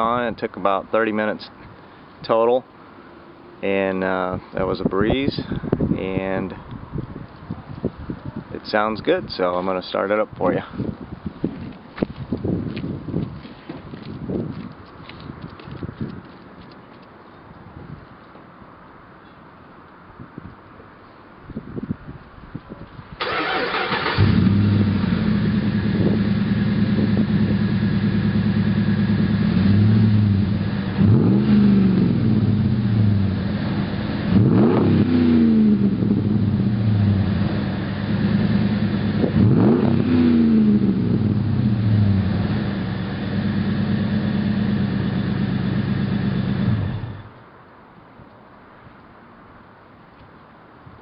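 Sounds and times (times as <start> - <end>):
truck engine starting: 23.2 - 47.3
v eight engine idling and revving: 23.2 - 47.3.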